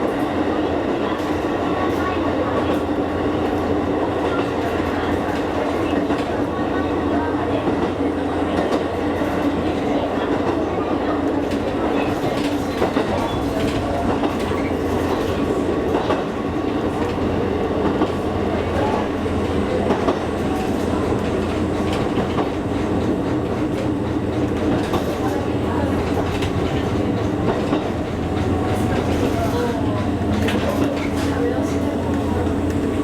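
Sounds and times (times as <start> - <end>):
train running rumble and hum: 0.0 - 33.0.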